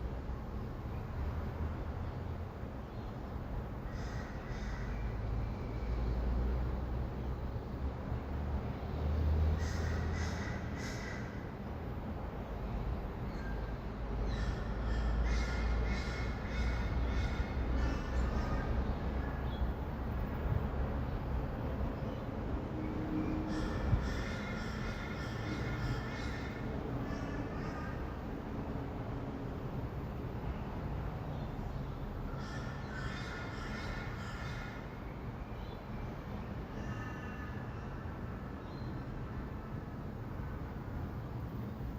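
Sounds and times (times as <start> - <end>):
distant city traffic rumble: 0.0 - 41.9.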